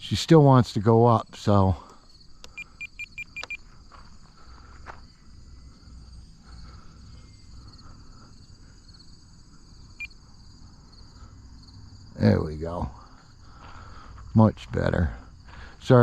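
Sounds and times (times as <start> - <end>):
crickets trilling: 0.0 - 16.0
short electronic beeps: 2.5 - 3.6.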